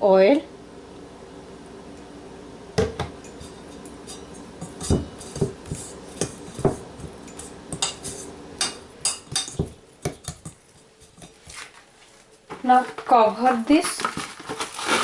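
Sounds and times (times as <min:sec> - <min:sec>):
mixing bowl and utensils clattering: 0:03.0 - 0:11.9, 0:12.5 - 0:15.0.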